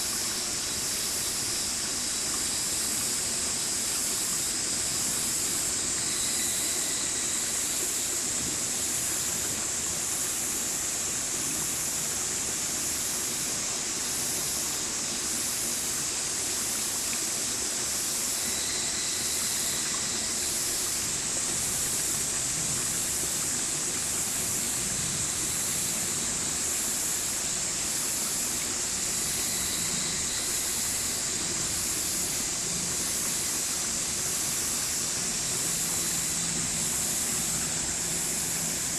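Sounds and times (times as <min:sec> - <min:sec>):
stream water flowing: 0:00.0 - 0:38.9.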